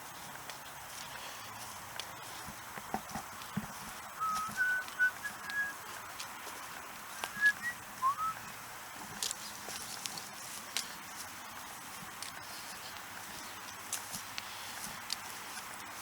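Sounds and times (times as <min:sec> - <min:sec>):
faint clicks and rustles: 0:00.0 - 0:16.0
person whistling: 0:04.2 - 0:05.8, 0:07.3 - 0:08.4.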